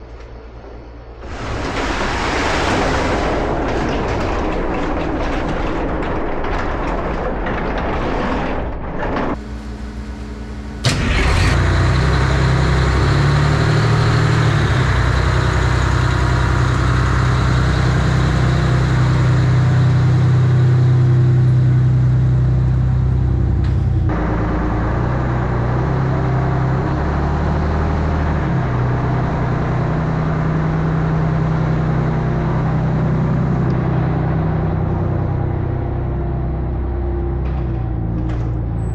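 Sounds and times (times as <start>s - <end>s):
deep engine rumble: 0.0s - 38.9s
loud rushing noise: 1.1s - 4.5s
engine starting click: 10.8s - 12.7s.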